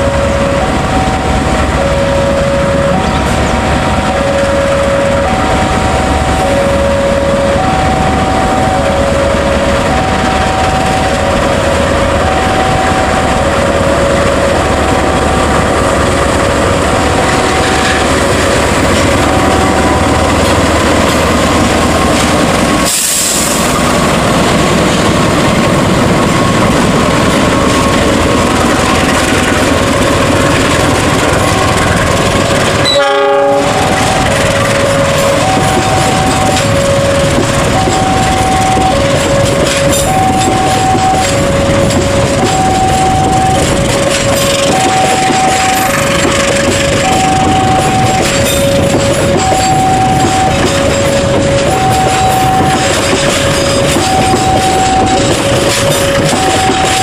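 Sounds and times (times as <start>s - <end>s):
locomotive engine running: 0.0s - 57.0s
two-tone electronic warning alarm: 0.0s - 57.0s
wheels clattering on rails: 0.0s - 57.0s.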